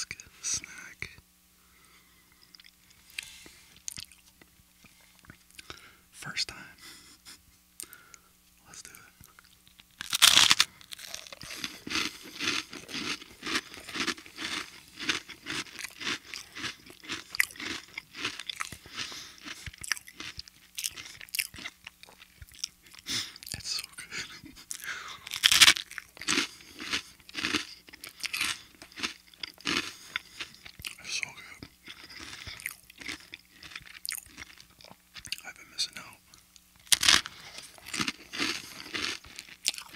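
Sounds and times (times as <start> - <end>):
crunchy chewing: 2.2 - 5.8, 8.9 - 39.9
crunchy bite into toast: 9.5 - 23.7, 24.8 - 35.4, 36.8 - 39.9.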